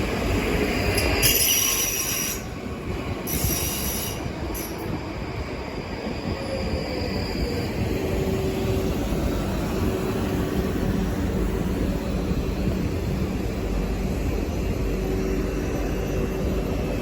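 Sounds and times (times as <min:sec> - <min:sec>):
train rumbling: 0:00.0 - 0:17.0
wheels squealing on rails: 0:00.2 - 0:09.2.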